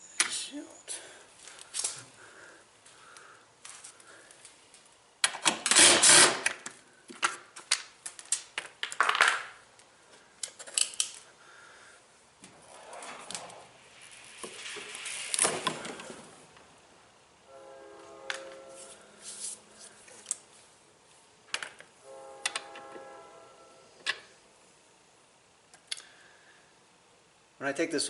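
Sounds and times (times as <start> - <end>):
loud scraping rattle: 12.4 - 16.6.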